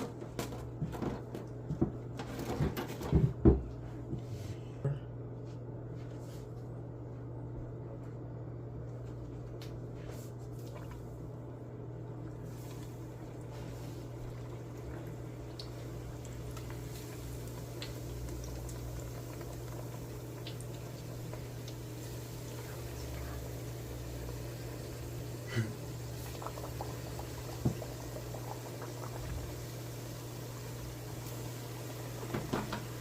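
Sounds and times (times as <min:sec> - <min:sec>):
dough sizzling in hot oil: 0:12.4 - 0:33.0.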